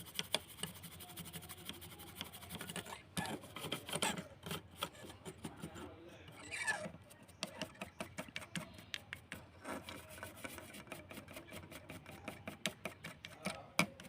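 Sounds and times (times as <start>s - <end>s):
rapid irregular clicking: 0.0s - 6.5s
rubbing and scraping: 0.0s - 14.0s.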